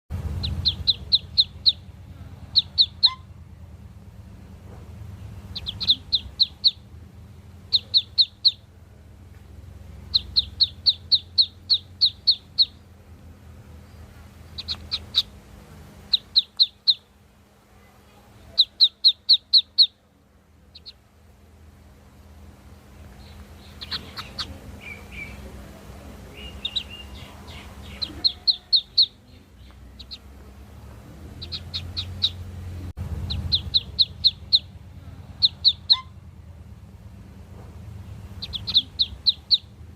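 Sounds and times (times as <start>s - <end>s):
ducklings peeping: 0.1s - 3.5s, 5.1s - 6.9s, 7.6s - 8.7s, 10.0s - 13.0s, 13.8s - 17.1s, 18.3s - 20.0s, 20.7s - 21.0s, 23.0s - 36.3s, 38.2s - 39.9s
steady low hum: 0.1s - 39.9s.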